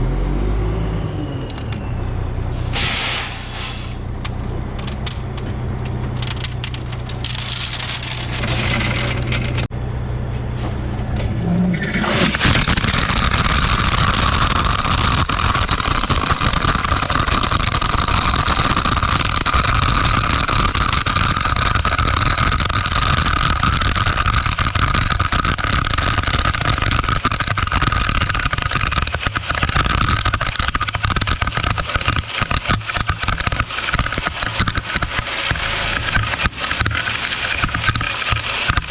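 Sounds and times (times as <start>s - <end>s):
dump truck engine running: 0.0s - 20.3s, 33.6s - 38.9s
rock pouring out rushing and rattling: 4.8s - 9.7s, 11.8s - 38.9s
steady whine: 23.9s - 38.9s.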